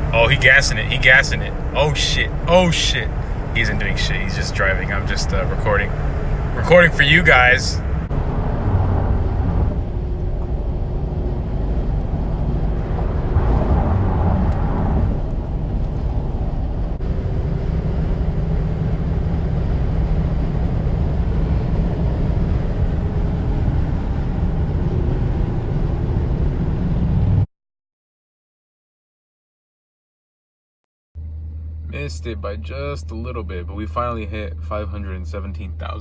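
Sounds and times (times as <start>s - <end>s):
wind noise: 0.0s - 27.4s
engine noise inside cabin: 0.0s - 27.5s, 31.2s - 36.0s.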